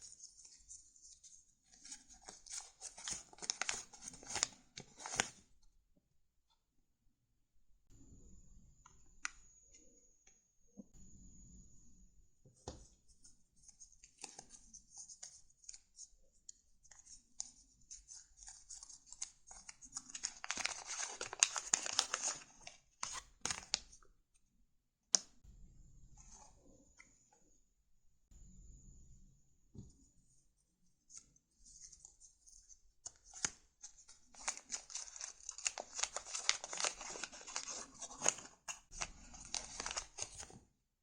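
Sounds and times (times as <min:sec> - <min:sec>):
paper rustling and crinkling: 0:00.0 - 0:05.4, 0:18.1 - 0:23.9, 0:33.0 - 0:40.6.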